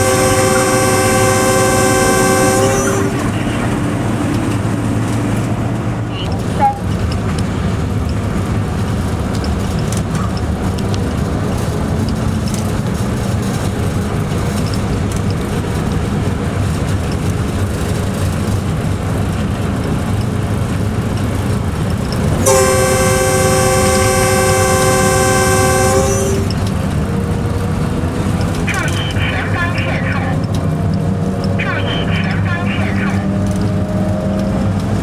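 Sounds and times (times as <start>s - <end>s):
two-tone locomotive horn blast: 0.0s - 6.9s, 22.1s - 30.8s, 31.6s - 35.0s
locomotive rumbling: 0.0s - 35.0s.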